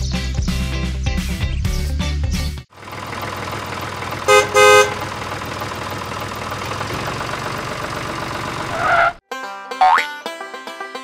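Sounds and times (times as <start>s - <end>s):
vehicle horn honking: 4.2s - 5.1s.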